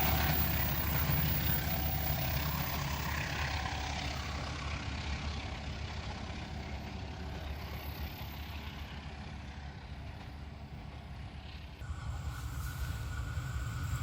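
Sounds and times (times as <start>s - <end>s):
train rumbling past: 0.0s - 14.0s.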